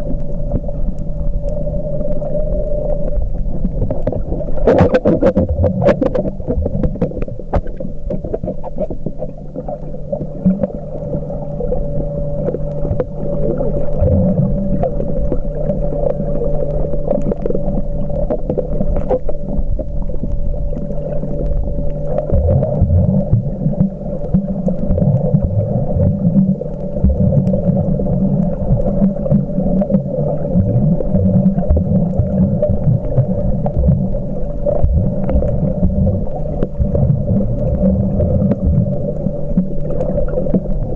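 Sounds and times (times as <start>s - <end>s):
steady hum: 0.0s - 40.9s
underwater churning rumble: 0.0s - 40.9s.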